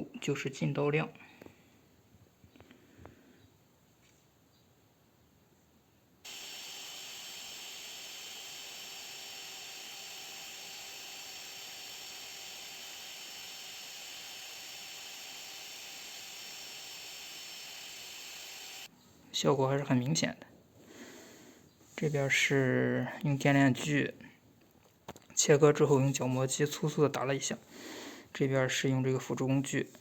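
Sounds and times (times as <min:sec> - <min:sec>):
electric router whining: 0:06.3 - 0:18.9.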